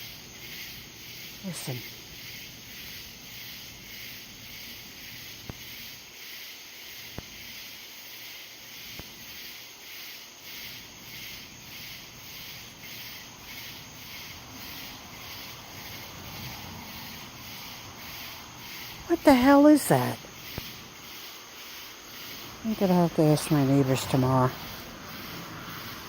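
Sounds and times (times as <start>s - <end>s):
pulsing chorus of night creatures: 1.3s - 2.1s, 13.0s - 26.0s.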